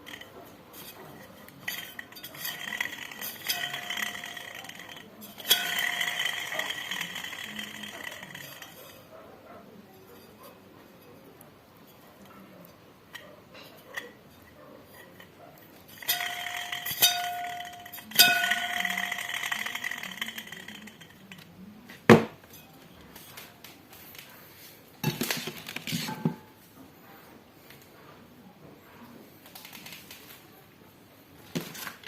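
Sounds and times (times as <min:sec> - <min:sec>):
metal clattering: 0:00.0 - 0:09.1, 0:13.1 - 0:21.5
metal parts clinking and ringing: 0:00.0 - 0:09.1, 0:13.1 - 0:21.5.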